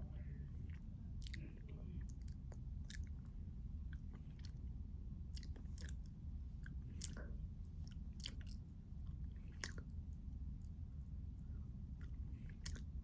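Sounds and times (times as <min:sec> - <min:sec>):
steady low hum: 0:00.0 - 0:13.0
chewing crisp crunches: 0:00.6 - 0:09.9, 0:12.0 - 0:13.0.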